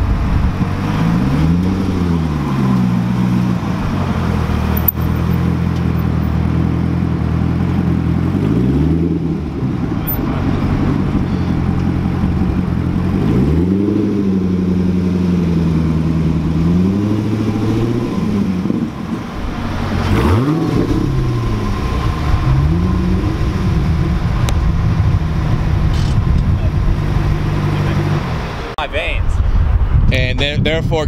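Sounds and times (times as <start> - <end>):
sports car engine revving: 0.0 - 28.8.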